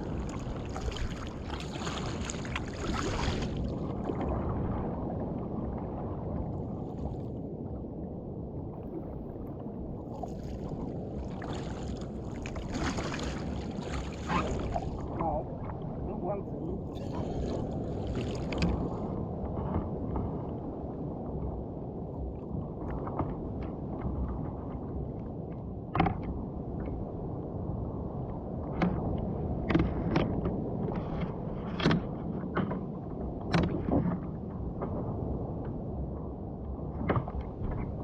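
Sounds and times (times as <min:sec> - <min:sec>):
water sloshing around kayak: 0:00.0 - 0:21.1
wind: 0:00.0 - 0:38.0
splashes knocking against hull: 0:10.2 - 0:15.3.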